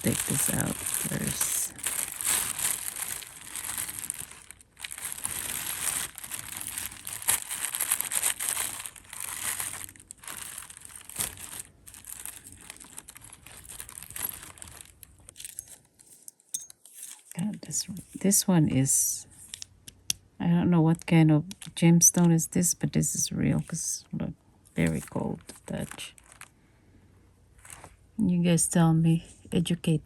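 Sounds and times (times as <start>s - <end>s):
wrapping crinkling and rustling: 0.0s - 19.8s, 24.8s - 26.6s, 27.5s - 28.1s.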